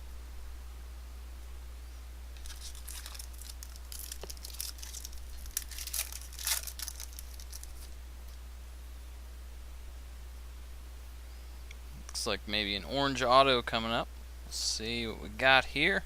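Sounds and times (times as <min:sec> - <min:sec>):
foil wrapper tearing and crinkling: 0:02.4 - 0:08.0.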